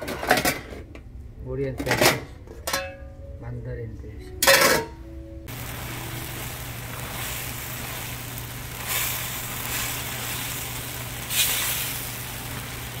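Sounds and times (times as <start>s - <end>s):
steady low hum: 5.1s - 13.0s
food sizzling in a wok: 5.5s - 13.0s.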